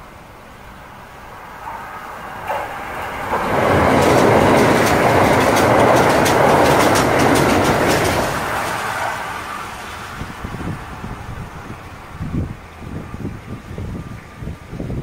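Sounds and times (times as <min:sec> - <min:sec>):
electric train passing on a bridge: 0:00.0 - 0:15.0
wheels clacking over rail joints: 0:01.2 - 0:12.2.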